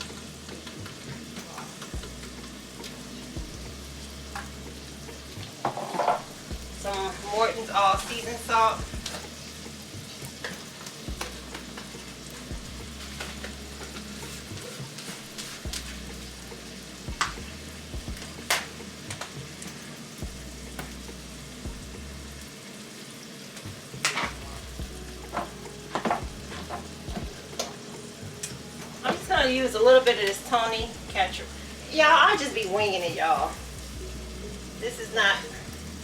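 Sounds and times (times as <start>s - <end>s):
meat frying in a pan: 0.0s - 36.0s.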